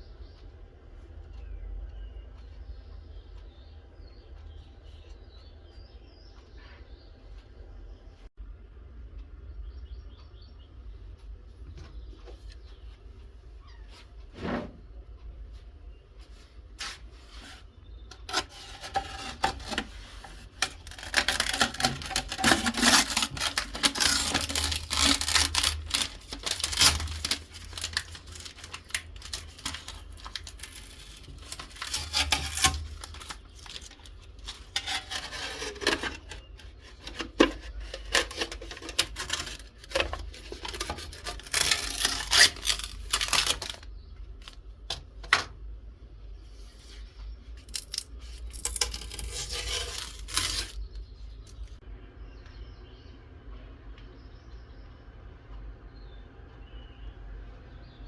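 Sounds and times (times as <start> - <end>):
hand scraping and rubbing: 16.2 - 43.8, 46.4 - 50.9.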